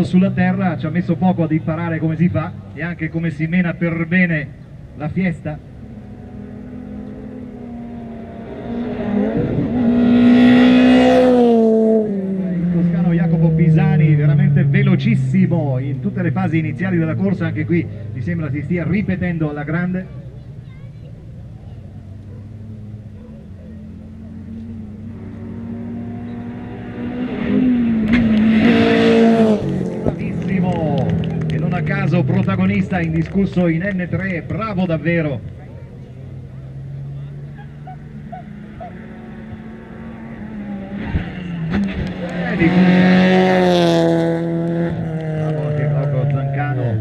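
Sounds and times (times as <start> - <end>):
rally car engine at high revs: 5.0 - 19.9, 22.2 - 47.0
gravel crackling under tyres: 27.7 - 47.0.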